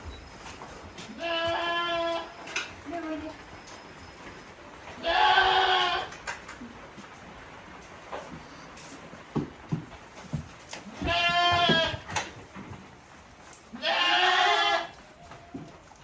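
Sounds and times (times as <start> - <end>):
goat bleating: 1.2 - 2.3, 5.0 - 6.1, 10.9 - 12.0, 13.8 - 15.0.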